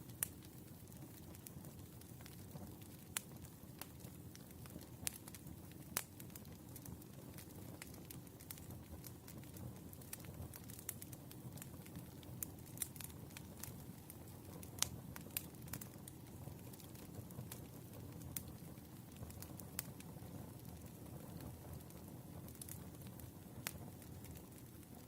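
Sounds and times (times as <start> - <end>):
firewood crackling: 0.0 - 25.0.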